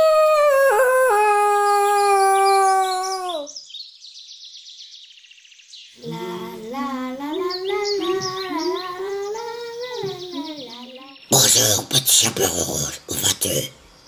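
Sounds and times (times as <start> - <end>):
child humming a tune: 6.0 - 11.1
high bird-like chirps and trills: 7.2 - 11.8.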